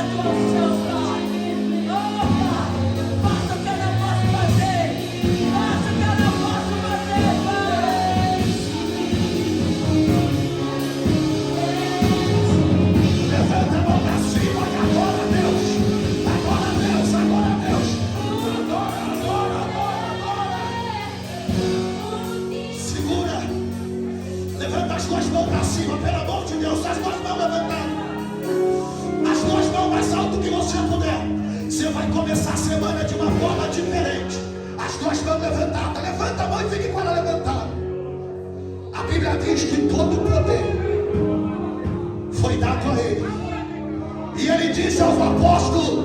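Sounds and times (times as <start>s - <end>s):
voices singing: 0.0s - 34.5s
worship band playing: 0.0s - 46.0s
drum beat: 3.3s - 19.8s.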